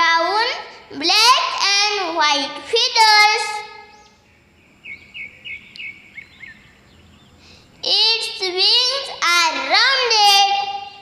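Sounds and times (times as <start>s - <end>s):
child's high-pitched voice: 0.0s - 3.8s, 7.8s - 11.0s
sparrow chirping: 3.5s - 9.0s.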